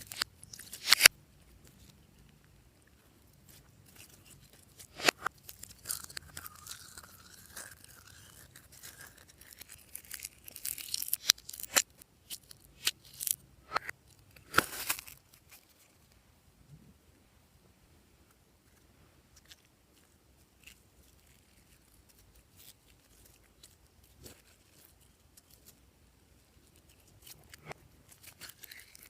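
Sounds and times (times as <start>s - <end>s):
slime crackling and tearing: 3.8s - 15.9s, 26.4s - 29.0s.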